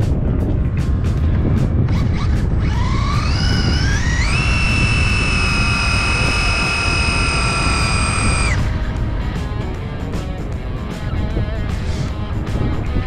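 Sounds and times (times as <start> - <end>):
electric motor whine: 1.9 - 8.9.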